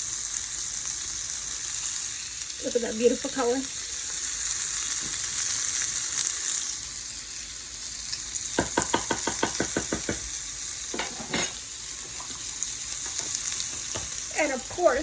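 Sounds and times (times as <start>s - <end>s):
food sizzling in a frying pan: 0.0s - 15.0s
knocks: 8.6s - 10.3s.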